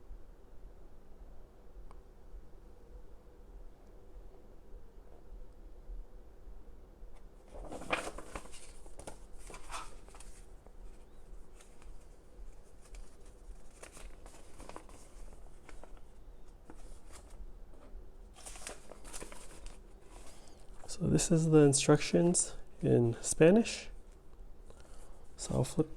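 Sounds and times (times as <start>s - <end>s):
paper leaflet rustling: 7.4s - 21.8s.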